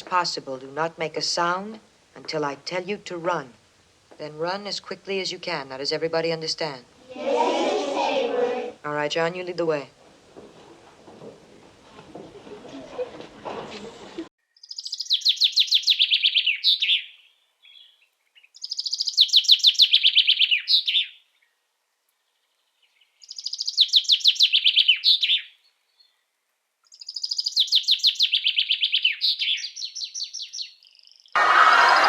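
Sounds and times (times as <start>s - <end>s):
songbird trilling: 14.6s - 17.9s, 18.5s - 21.2s, 23.2s - 25.5s, 27.0s - 31.4s.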